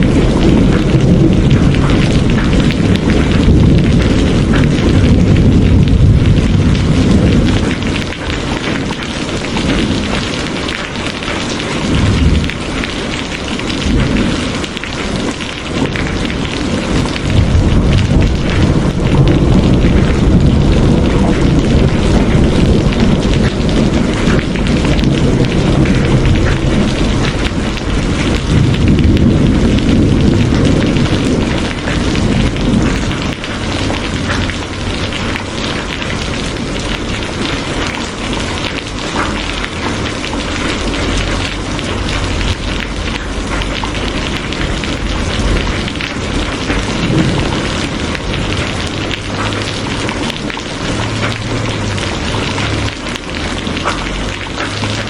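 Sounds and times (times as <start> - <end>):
low rumble: 0.0 - 8.2, 15.8 - 35.5, 39.7 - 54.4
rain patter: 0.0 - 55.0.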